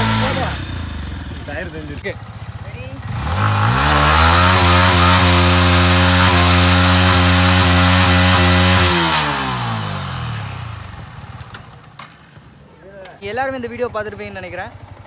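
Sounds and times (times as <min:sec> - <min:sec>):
motorcycle engine revving high: 0:00.0 - 0:11.4.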